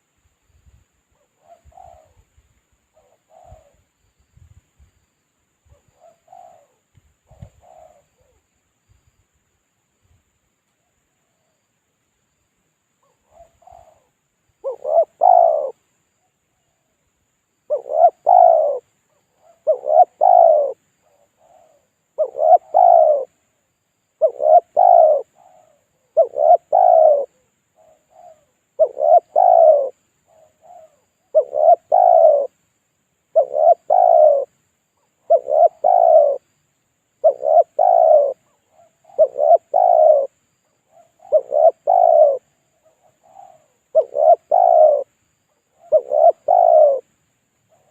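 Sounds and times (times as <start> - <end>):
dove cooing: 1.2 - 3.9, 5.7 - 8.4, 13.0 - 15.8, 17.7 - 23.4, 24.2 - 32.6, 33.3 - 36.5, 37.2 - 47.1, 47.7 - 47.9.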